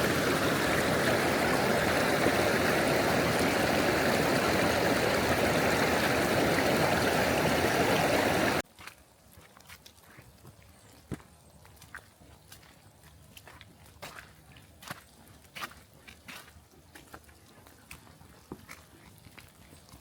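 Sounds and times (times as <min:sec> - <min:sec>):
flowing water: 0:00.0 - 0:08.6.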